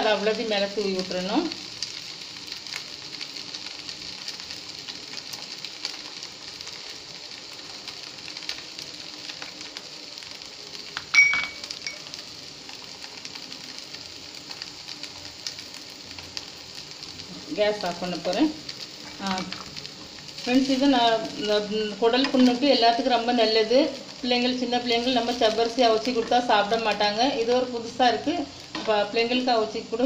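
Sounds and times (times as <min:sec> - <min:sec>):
food sizzling in oil: 0:00.0 - 0:30.0
sharp ringing clink: 0:11.1 - 0:12.0.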